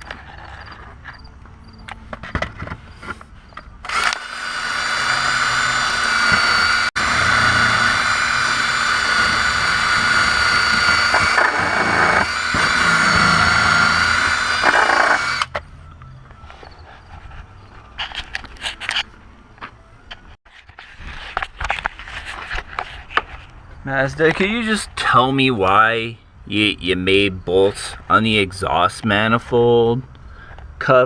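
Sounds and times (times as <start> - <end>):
power tool high whine: 3.8 - 15.6.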